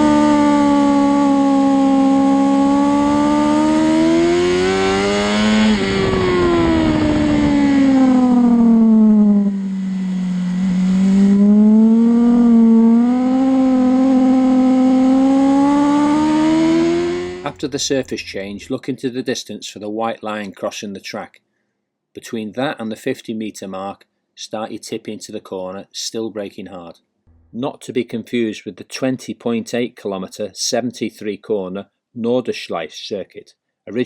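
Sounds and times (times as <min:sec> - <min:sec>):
racing motorcycle engine: 0:00.0 - 0:18.7.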